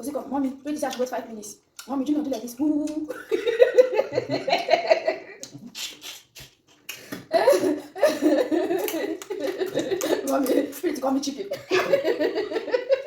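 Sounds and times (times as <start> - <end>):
person laughing: 7.3 - 10.6, 11.5 - 13.0.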